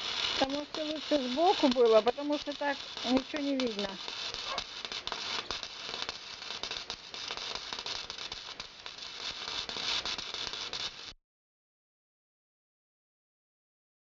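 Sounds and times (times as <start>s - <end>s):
welder arc crackling: 0.0s - 11.2s.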